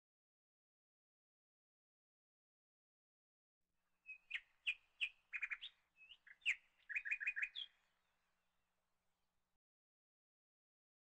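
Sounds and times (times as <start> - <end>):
bird chirping: 4.0 - 7.9.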